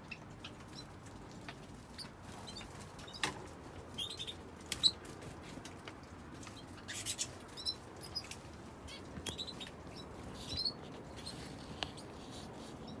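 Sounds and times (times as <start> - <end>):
small birds chirping: 3.9 - 5.0, 6.4 - 13.0.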